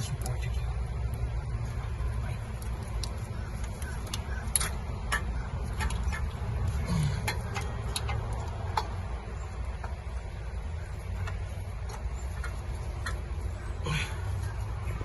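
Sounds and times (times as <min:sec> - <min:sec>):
steady low rumble: 0:00.0 - 0:15.0
hand tools clicking and tapping: 0:02.5 - 0:10.1.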